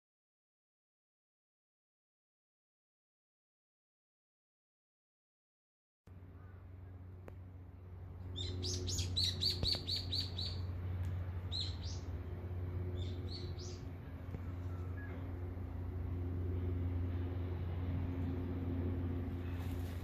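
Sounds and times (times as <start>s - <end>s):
steady low rumble: 6.1s - 20.0s
songbird chirping: 8.2s - 10.7s, 11.5s - 12.2s, 12.9s - 15.3s.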